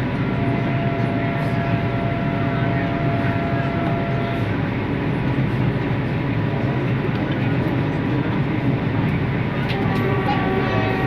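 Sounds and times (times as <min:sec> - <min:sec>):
train rumbling on rails: 0:00.0 - 0:11.0.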